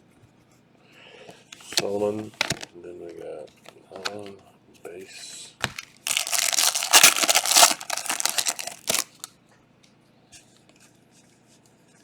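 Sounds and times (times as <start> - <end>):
foil wrapper tearing and crinkling: 5.6 - 9.3.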